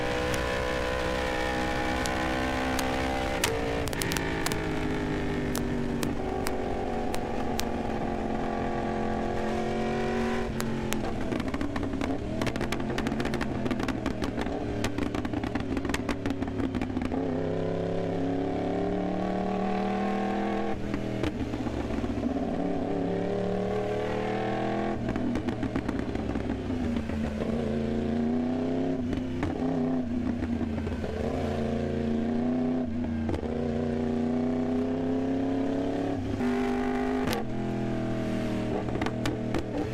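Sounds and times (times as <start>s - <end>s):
motorcycle engine accelerating: 0.0s - 39.9s
exhaust crackles: 1.7s - 7.9s.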